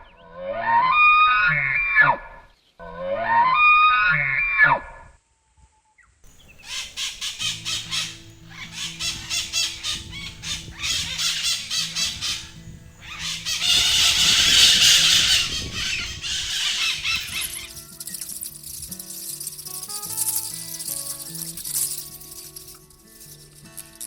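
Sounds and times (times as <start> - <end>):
flock of birds squawking: 6.3 - 22.4.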